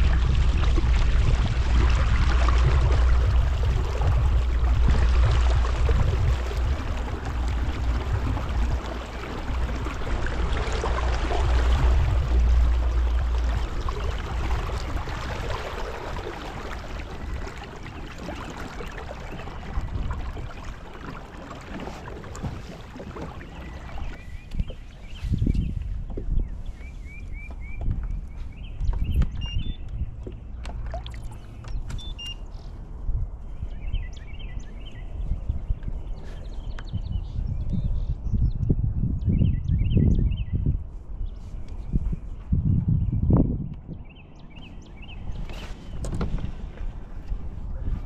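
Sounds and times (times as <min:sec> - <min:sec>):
water rushing against hull: 0:00.0 - 0:36.8, 0:44.6 - 0:48.0
low wind rumble: 0:00.0 - 0:48.0
faint high bird chirps: 0:31.2 - 0:32.7.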